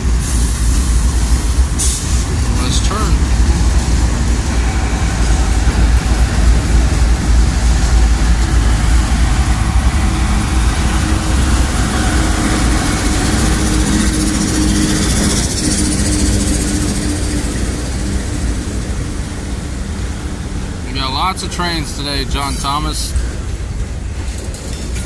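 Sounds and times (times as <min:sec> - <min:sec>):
vehicle engine rumbling: 0:00.0 - 0:25.0.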